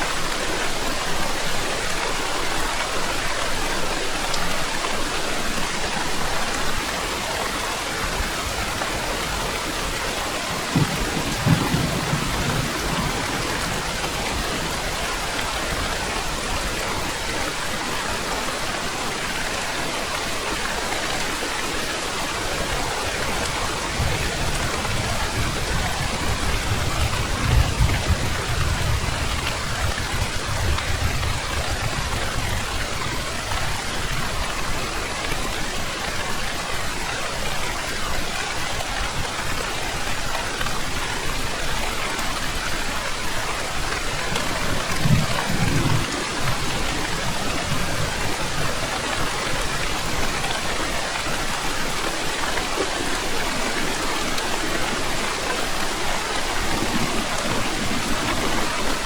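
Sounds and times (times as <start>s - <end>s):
heavy rain falling: 0.0s - 59.0s
thunder rumble: 10.4s - 16.8s, 44.0s - 49.2s.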